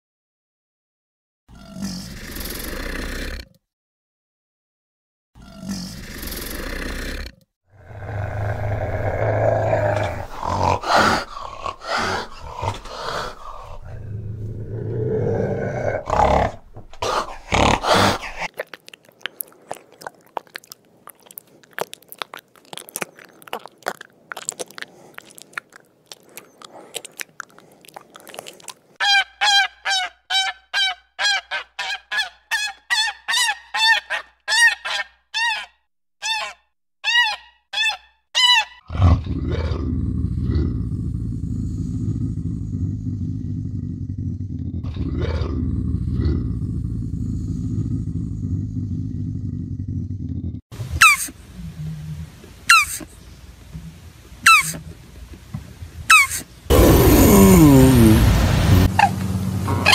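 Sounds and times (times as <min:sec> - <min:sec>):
low animal calls: 0:54.4 - 0:54.8.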